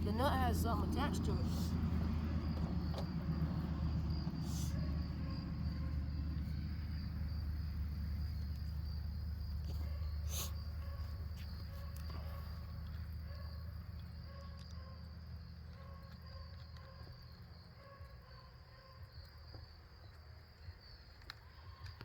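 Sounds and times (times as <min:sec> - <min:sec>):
low rumble: 0:00.0 - 0:09.6
insects chirping: 0:00.0 - 0:22.0.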